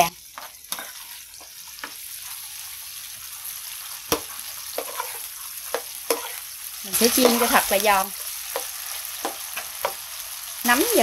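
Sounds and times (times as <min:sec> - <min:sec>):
spatula knocking and scraping pan: 0:00.0 - 0:02.0, 0:04.1 - 0:10.0
food sizzling in hot oil: 0:00.0 - 0:11.0.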